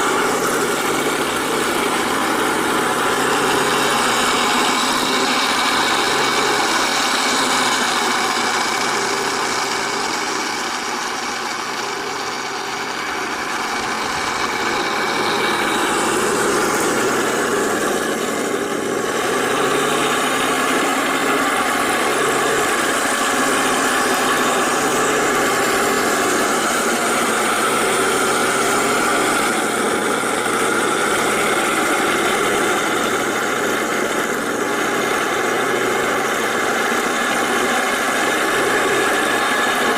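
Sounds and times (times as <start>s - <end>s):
simulated tank engine sound: 0.0s - 39.9s.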